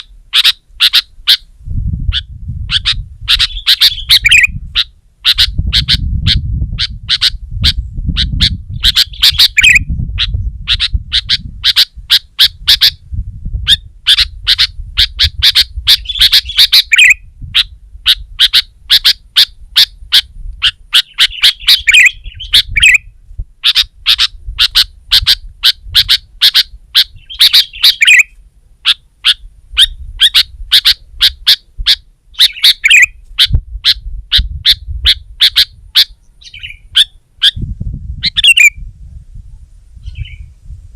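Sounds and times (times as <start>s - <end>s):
bulbul chattering call: 0.0s - 1.5s, 2.1s - 13.0s, 13.7s - 37.6s, 38.2s - 38.8s
low rumble: 13.0s - 16.1s.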